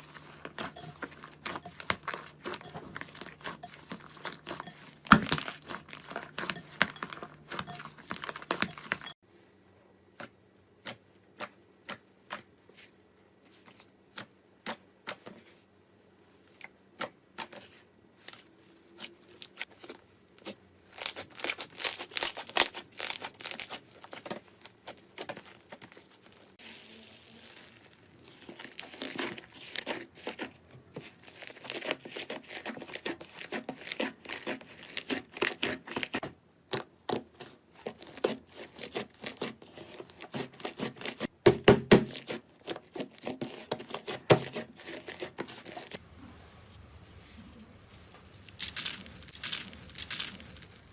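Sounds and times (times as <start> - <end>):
slime crackling and popping: 48.3 - 50.9.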